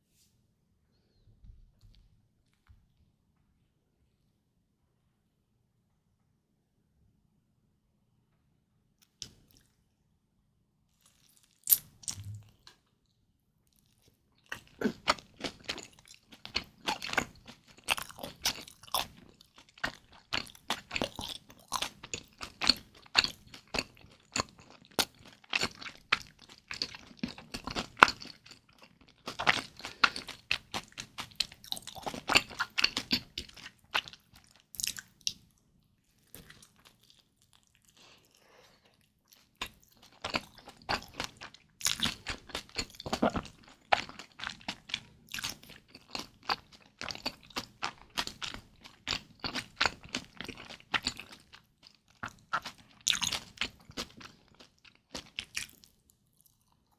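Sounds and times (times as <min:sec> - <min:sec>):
crunchy chewing: 0:13.7 - 0:35.4, 0:36.2 - 0:56.9.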